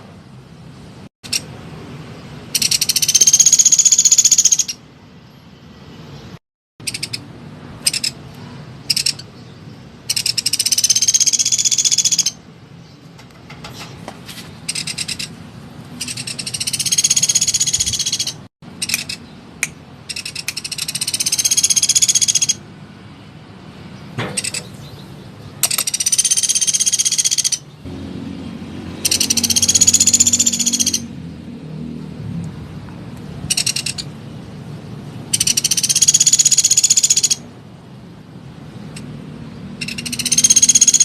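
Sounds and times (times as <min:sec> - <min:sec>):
woodpecker trilling: 0:02.6 - 0:04.8, 0:06.8 - 0:08.2, 0:08.8 - 0:09.3, 0:10.0 - 0:12.4, 0:14.7 - 0:15.3, 0:16.0 - 0:19.3, 0:20.0 - 0:22.6, 0:24.4 - 0:25.0, 0:25.6 - 0:27.8, 0:29.0 - 0:31.1, 0:33.5 - 0:34.1, 0:35.3 - 0:37.4, 0:39.8 - 0:41.0.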